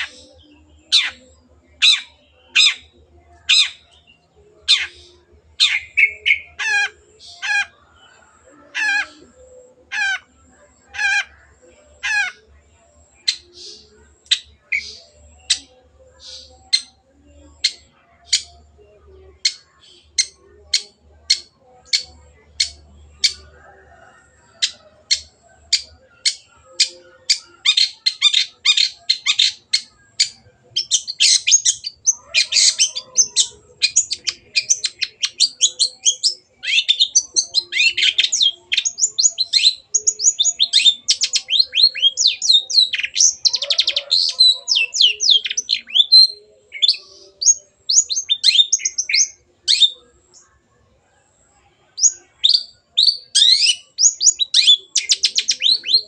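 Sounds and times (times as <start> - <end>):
bird chattering song: 0.0 - 50.5, 52.0 - 56.0
shrike calling: 19.4 - 50.1.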